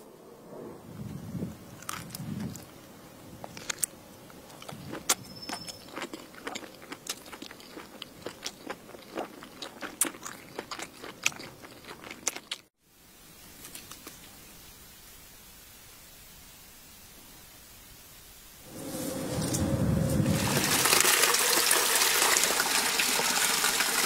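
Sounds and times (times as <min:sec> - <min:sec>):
crunchy food chewing: 0:01.7 - 0:02.7, 0:03.4 - 0:12.7
faint hiss: 0:12.8 - 0:21.1.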